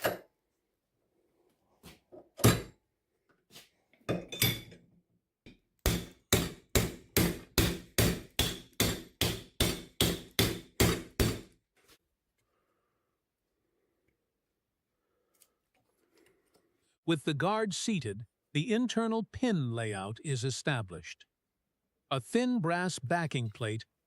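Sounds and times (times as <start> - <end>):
hammer striking metal: 5.9 - 11.5.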